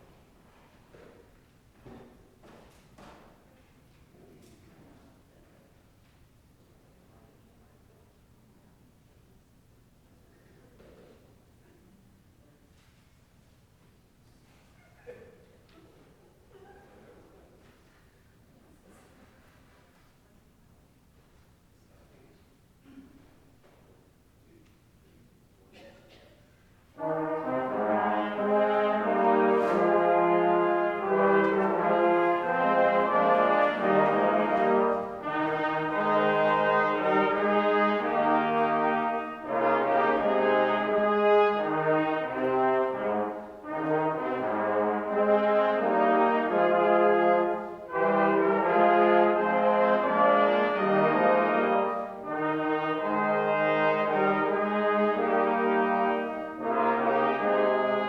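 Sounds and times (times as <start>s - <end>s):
church organ chords: 27.0s - 58.0s.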